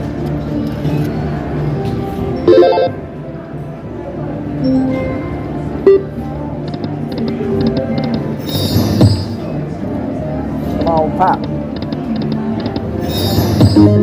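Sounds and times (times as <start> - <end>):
slot machine game music: 2.4 - 3.1, 4.6 - 6.2.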